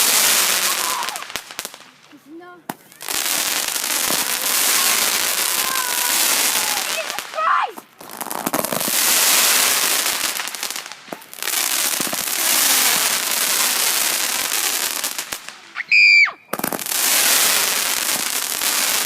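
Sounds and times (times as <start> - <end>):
firework cake barrage: 0.0 - 19.0
high-pitched firework whistle: 15.8 - 16.6.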